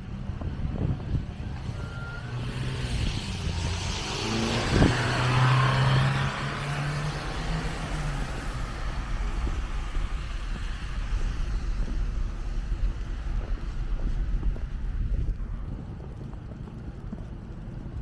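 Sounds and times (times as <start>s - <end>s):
low engine hum: 0.0s - 18.0s
vehicle passing on street: 0.0s - 18.0s.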